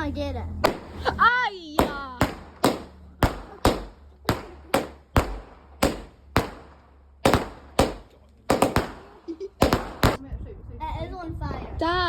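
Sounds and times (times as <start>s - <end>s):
firework bangs: 0.6s - 10.2s.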